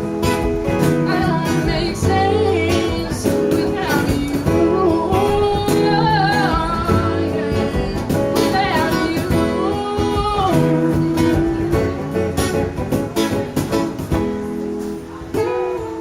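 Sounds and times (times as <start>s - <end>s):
acoustic guitar strumming: 0.0s - 16.0s
person singing: 0.8s - 13.3s.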